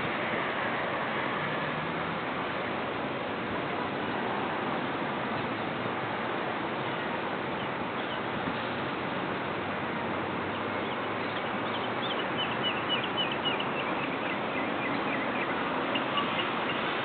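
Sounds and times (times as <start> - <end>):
steady rushing noise: 0.0 - 12.6
small bird chirping: 10.8 - 16.9.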